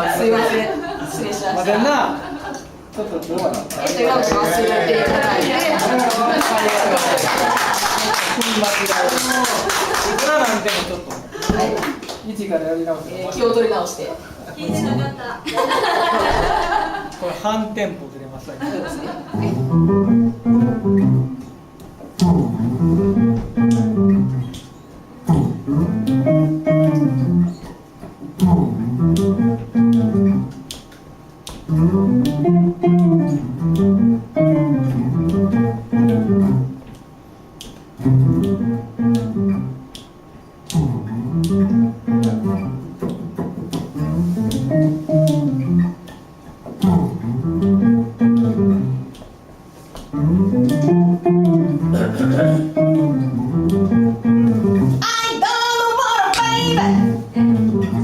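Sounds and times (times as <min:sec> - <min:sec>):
guitar and bass riff: 0:19.4 - 0:21.5, 0:22.2 - 0:24.6, 0:25.2 - 0:27.7, 0:28.4 - 0:30.7, 0:31.7 - 0:36.9, 0:38.0 - 0:40.0, 0:40.7 - 0:46.1, 0:46.8 - 0:49.2, 0:50.1 - 0:55.0, 0:56.4 - 0:58.0.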